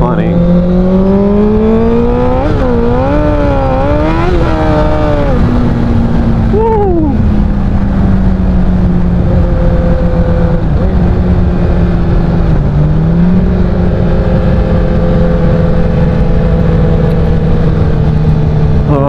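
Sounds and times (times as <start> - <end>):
motorcycle engine running: 0.0 - 19.0
wind rumbling on microphone: 0.0 - 19.0.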